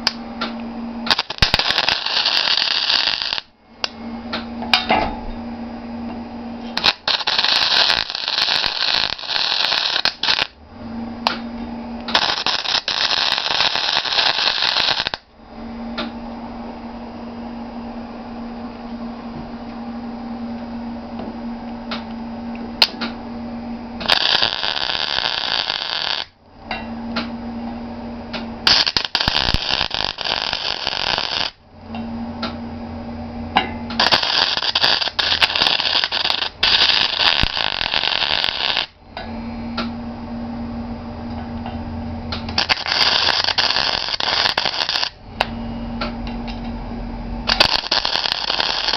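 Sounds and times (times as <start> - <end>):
welding machine hum: 0.0 - 16.1, 20.6 - 40.0, 40.9 - 48.9
arc welding crackling hiss: 1.0 - 3.5, 6.6 - 10.6, 12.1 - 15.3, 24.0 - 26.4, 28.6 - 31.6, 34.0 - 39.0, 42.5 - 45.2, 47.4 - 48.9.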